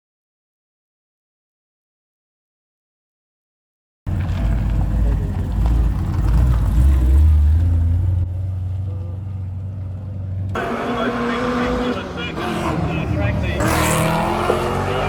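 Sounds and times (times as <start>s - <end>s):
rally car engine rumbling: 4.1s - 15.0s.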